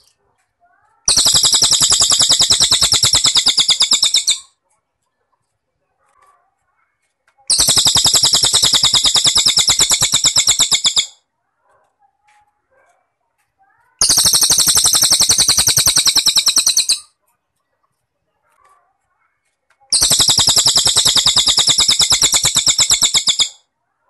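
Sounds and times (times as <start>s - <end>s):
songbird high trill: 1.1s - 4.4s, 7.5s - 11.2s, 14.0s - 17.0s, 20.0s - 23.6s.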